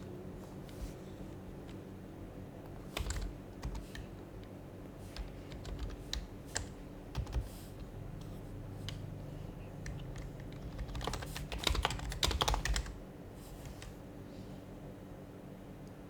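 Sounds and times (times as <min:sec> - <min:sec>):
keyboard typing: 0:02.7 - 0:14.0.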